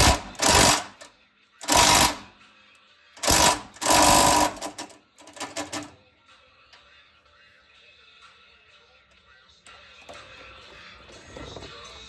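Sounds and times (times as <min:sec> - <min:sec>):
impact wrench rattling: 0:00.0 - 0:02.3, 0:03.2 - 0:05.9.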